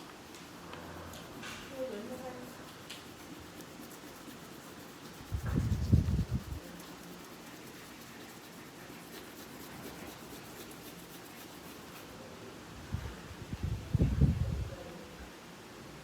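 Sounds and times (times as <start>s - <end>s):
coloring scratching on paper: 0.3s - 12.1s.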